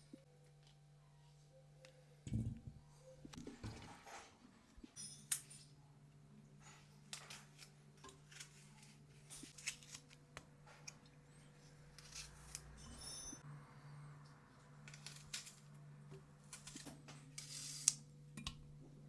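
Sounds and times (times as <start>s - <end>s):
low steady hum: 0.0s - 5.0s.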